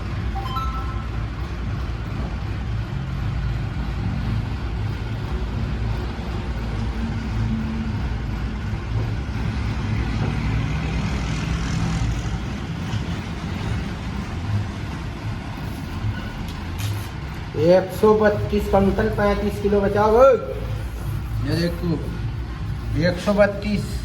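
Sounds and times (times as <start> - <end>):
tractor diesel engine drone: 0.0 - 24.0
brief rising high tones: 0.4 - 1.3.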